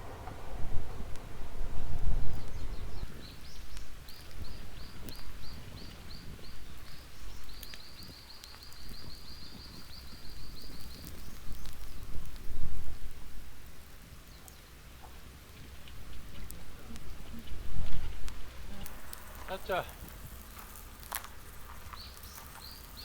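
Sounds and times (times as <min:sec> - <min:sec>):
low outdoor rumble: 0:00.0 - 0:08.3, 0:08.9 - 0:23.0
sharp crackles: 0:00.0 - 0:23.0
songbird chirping and trilling: 0:02.2 - 0:12.1, 0:21.7 - 0:23.0.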